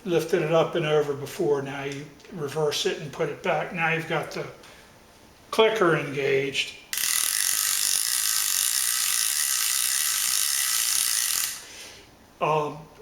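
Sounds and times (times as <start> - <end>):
fishing reel clicker rattling: 7.0 - 11.6.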